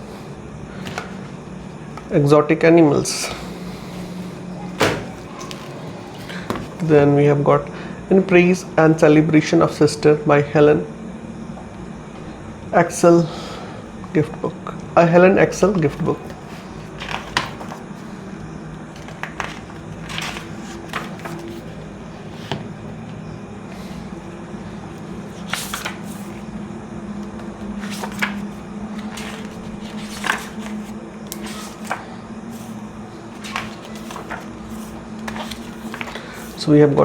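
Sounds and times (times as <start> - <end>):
book pages turning: 0.8 - 2.2, 4.7 - 7.0, 15.6 - 24.1, 24.8 - 26.5, 27.2 - 37.0.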